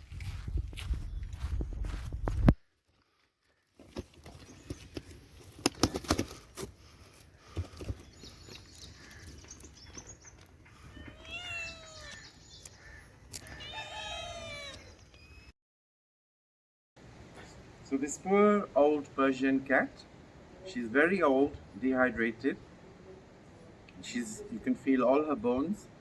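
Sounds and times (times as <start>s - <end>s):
cat meowing: 10.8s - 12.4s, 13.4s - 15.0s.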